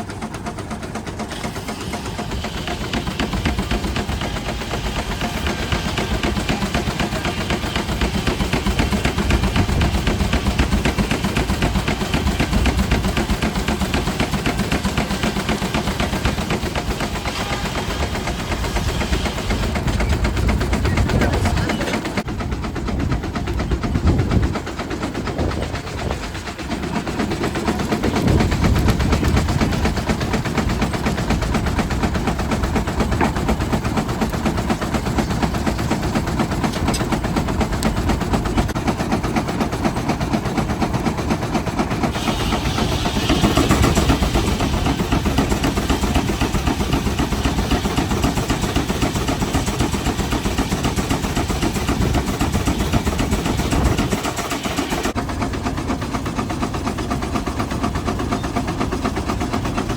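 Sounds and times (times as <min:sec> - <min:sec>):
steam traction engine thumping: 0:00.0 - 0:59.9.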